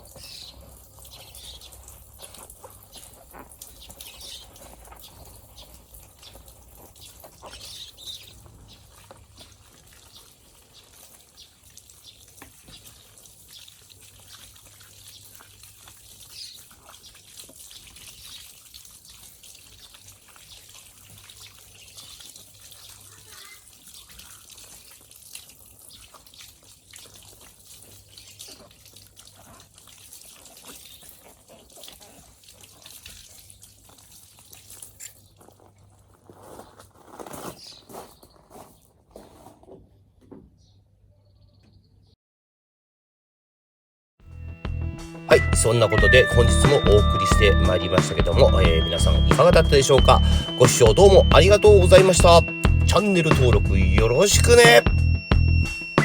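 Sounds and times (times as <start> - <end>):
water trickling from a tap: 0.0 - 35.6
small splashes: 0.0 - 35.8.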